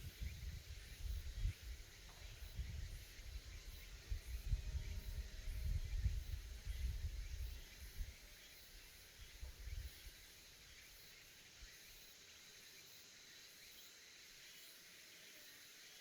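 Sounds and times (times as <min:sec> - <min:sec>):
low wind rumble on microphone: 0:00.0 - 0:08.4, 0:09.2 - 0:10.1
cicadas buzzing: 0:00.0 - 0:16.0.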